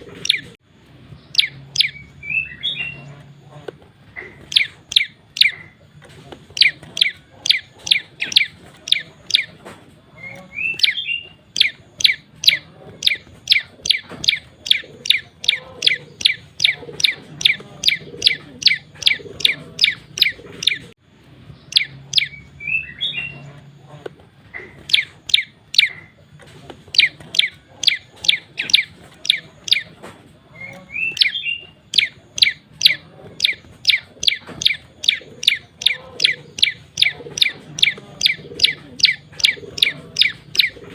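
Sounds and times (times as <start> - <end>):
twisting bird chirp: 0.0 - 40.9
songbird calling high sharp notes: 1.2 - 3.3, 4.2 - 5.8, 6.6 - 9.6, 10.2 - 20.9, 21.6 - 23.7, 24.6 - 26.2, 26.9 - 40.8.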